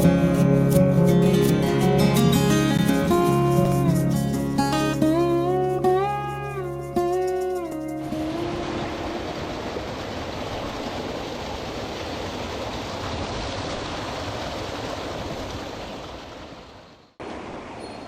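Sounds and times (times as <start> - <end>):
water rushing over rocks: 7.4 - 18.0.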